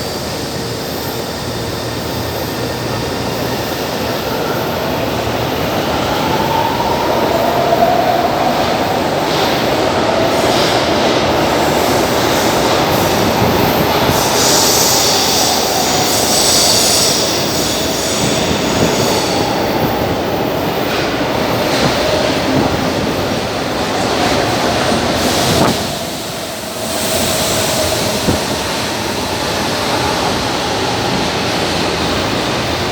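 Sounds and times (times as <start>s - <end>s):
metro train rail noise: 0.0s - 32.9s
high hiss: 24.5s - 31.5s.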